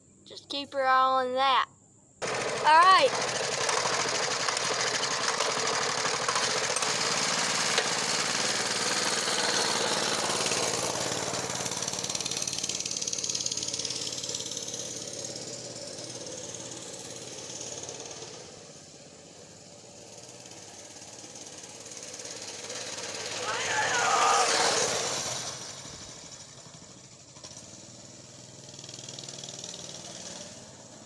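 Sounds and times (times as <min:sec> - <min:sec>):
dirt bike engine running: 0:02.2 - 0:17.9, 0:20.8 - 0:27.2.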